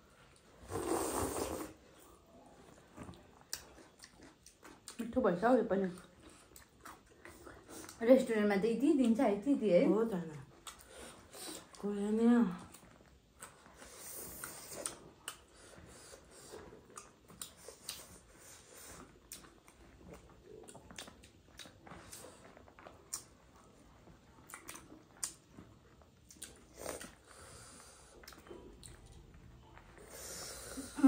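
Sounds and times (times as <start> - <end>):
wet mouth smacks while chewing: 16.8 - 18.3, 19.0 - 23.4, 24.4 - 27.2.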